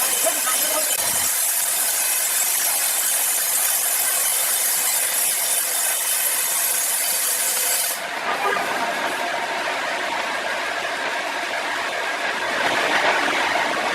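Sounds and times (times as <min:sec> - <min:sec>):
saw cutting through log: 0:00.0 - 0:09.3.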